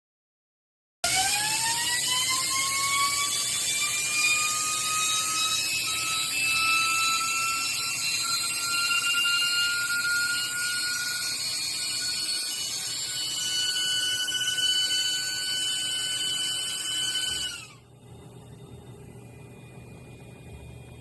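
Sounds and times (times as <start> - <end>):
rotary tool whining: 1.0 - 18.2.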